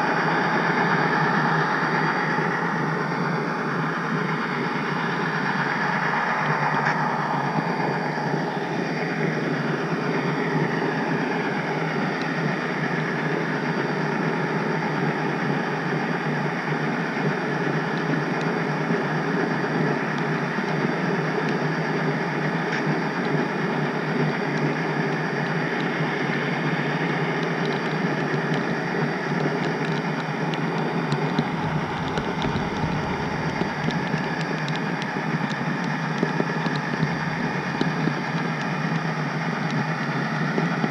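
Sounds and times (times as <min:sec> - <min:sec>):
model train running on track: 0:00.0 - 0:40.9
low rumble: 0:28.6 - 0:38.9.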